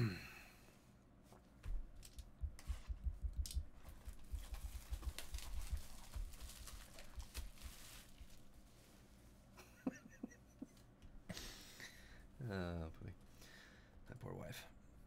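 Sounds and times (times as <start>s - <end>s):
card wrappers crinkling: 4.4s - 8.5s.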